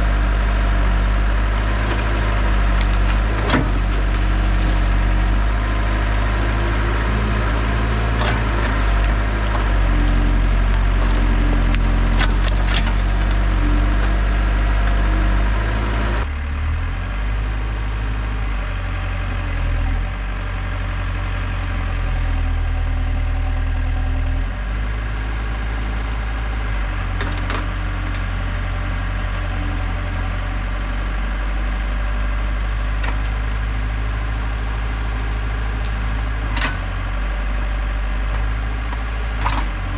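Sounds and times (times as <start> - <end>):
wood cracking and splintering: 0.0 - 16.2
heavy equipment engine labouring: 0.0 - 39.9.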